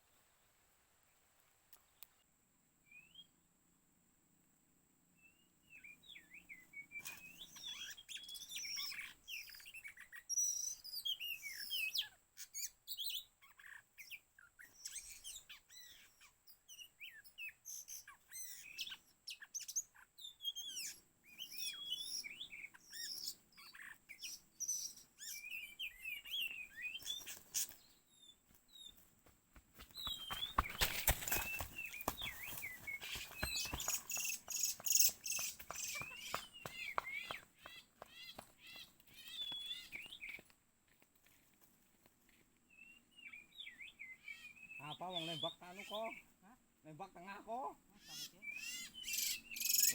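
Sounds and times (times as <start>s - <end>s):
bird singing whistled phrases: 48.2s - 49.9s.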